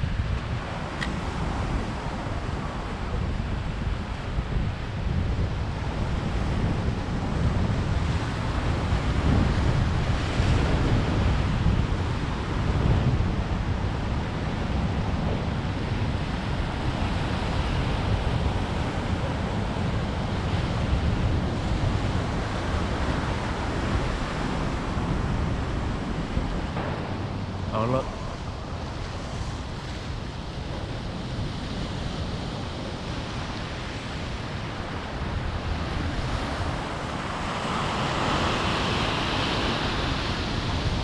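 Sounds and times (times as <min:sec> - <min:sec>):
ocean surf breaking: 0:00.0 - 0:41.0
wind buffeting microphone: 0:00.0 - 0:41.0.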